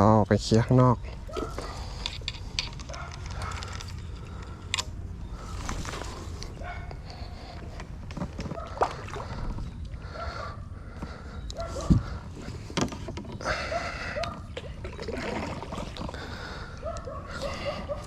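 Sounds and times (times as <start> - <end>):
paddle splashing in water: 8.6 - 9.4.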